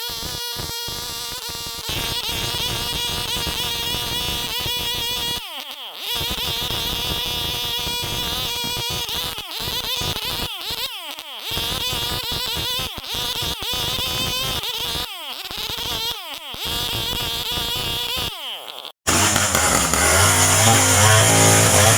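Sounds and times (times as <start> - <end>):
chainsaw engine revving: 19.1 - 21.9.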